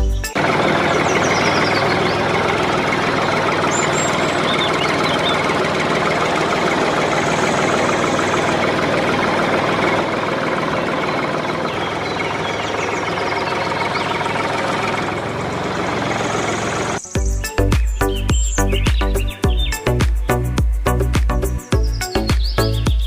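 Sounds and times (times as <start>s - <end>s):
power tool motor running: 0.4s - 17.1s.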